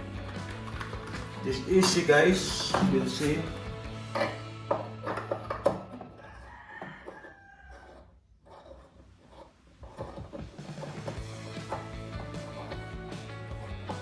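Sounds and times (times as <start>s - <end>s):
rooster crowing: 5.1s - 8.1s.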